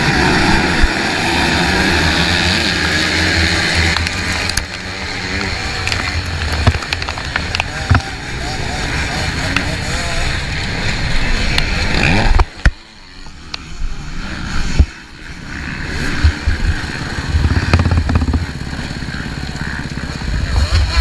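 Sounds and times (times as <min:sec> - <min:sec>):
motorcycle engine running: 0:00.0 - 0:21.0
sharp knocks: 0:17.4 - 0:18.6.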